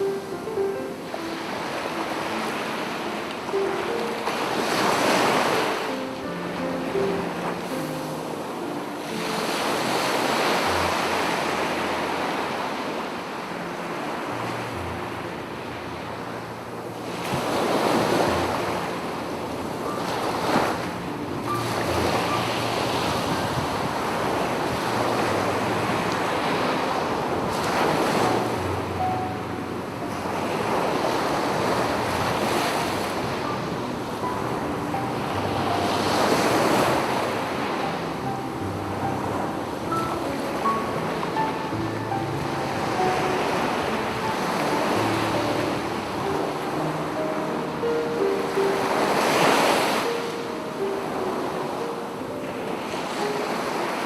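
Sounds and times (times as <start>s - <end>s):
sea waves breaking on beach: 0.0s - 54.0s
wind buffeting microphone: 16.7s - 37.8s.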